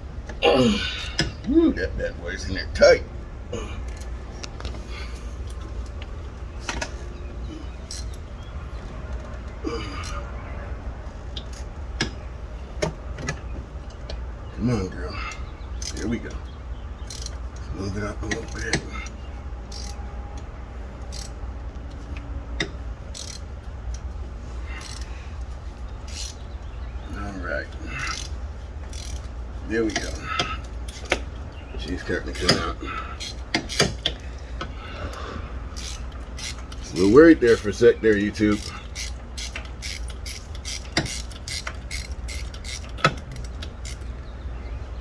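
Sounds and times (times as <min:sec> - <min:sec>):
steady low rumble: 0:00.0 - 0:45.0
socket wrench clicking: 0:07.8 - 0:08.5, 0:17.0 - 0:17.4, 0:18.3 - 0:24.1, 0:24.7 - 0:26.7, 0:28.0 - 0:34.7, 0:35.8 - 0:44.2.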